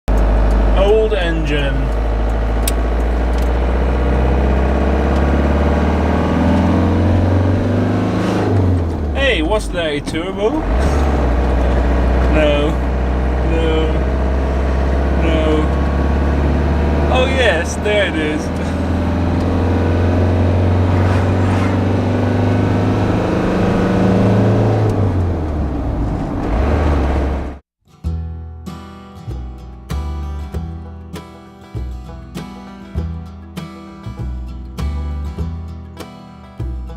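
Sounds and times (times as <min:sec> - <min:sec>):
motorhome engine droning: 0:00.1 - 0:27.6.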